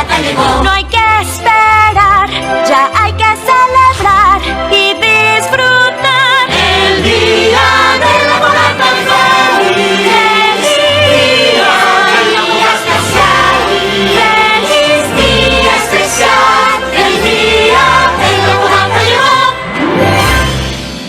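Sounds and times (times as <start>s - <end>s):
group singing festive song: 0.0s - 1.4s, 5.1s - 20.5s.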